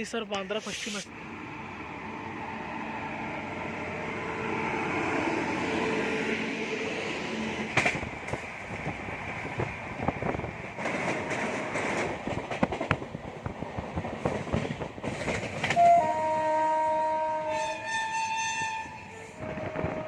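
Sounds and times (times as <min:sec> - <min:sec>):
train rumbling on track: 0:00.0 - 0:20.0
wheels clattering over rails: 0:10.8 - 0:16.0
train horn: 0:15.7 - 0:20.0.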